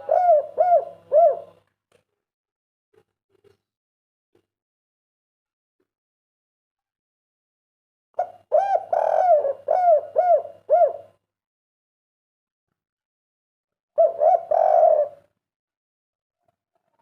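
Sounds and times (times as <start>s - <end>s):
dove cooing: 0.0s - 1.6s, 8.2s - 11.2s, 14.0s - 15.3s.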